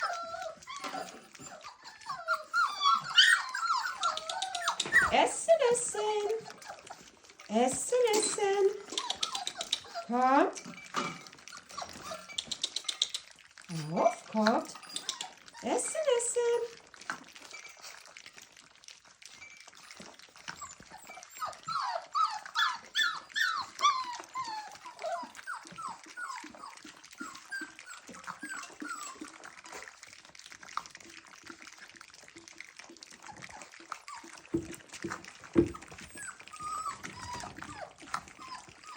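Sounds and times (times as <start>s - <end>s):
puppies whining and squeaking: 0.0s - 38.9s
small clicks: 12.3s - 13.4s.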